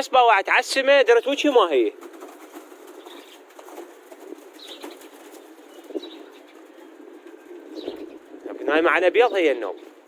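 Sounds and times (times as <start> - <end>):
pigeon wings flapping: 1.9 - 8.2.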